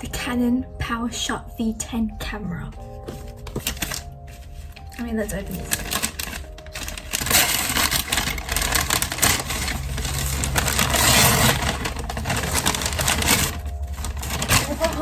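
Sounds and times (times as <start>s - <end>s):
wrapping paper tearing and rustling: 3.0s - 15.0s.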